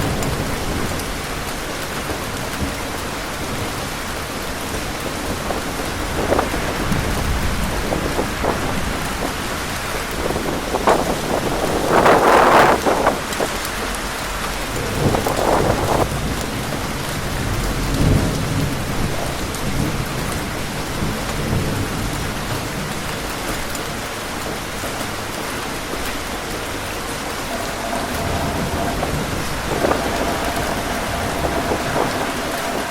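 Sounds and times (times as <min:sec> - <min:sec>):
gusts of wind: 0:00.0 - 0:16.4, 0:17.0 - 0:32.9
heavy rain pouring: 0:00.0 - 0:32.9
low rumbles: 0:26.4 - 0:32.9.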